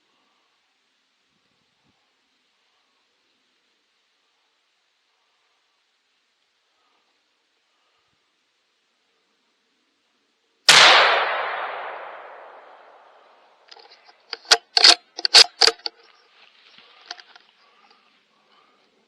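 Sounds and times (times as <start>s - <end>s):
rifle shot echoing: 10.7s - 13.6s
rifle bolt clacking: 13.7s - 15.9s.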